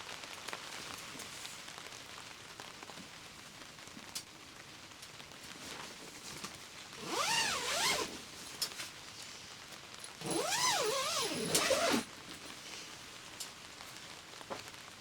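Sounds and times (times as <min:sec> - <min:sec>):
tent zipper pulled: 0:07.0 - 0:08.2, 0:10.2 - 0:12.1.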